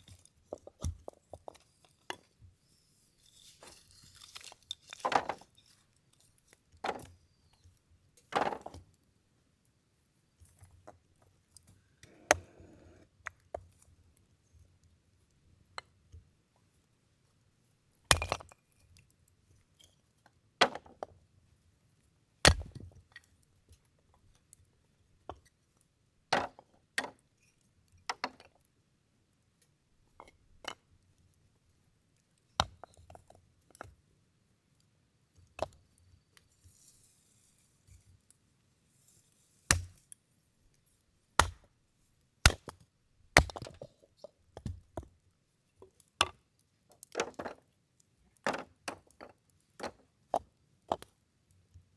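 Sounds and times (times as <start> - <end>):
axe chopping firewood: 18.1 - 18.5, 22.4 - 22.9, 39.7 - 40.0, 41.4 - 41.7, 42.4 - 42.8, 43.4 - 43.8.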